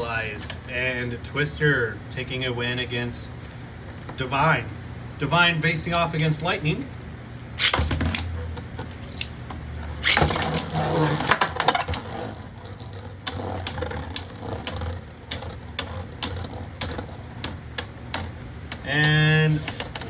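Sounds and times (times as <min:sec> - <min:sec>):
spinning tops whirring: 0:07.6 - 0:20.0
tops clicking against each other: 0:11.8 - 0:20.0.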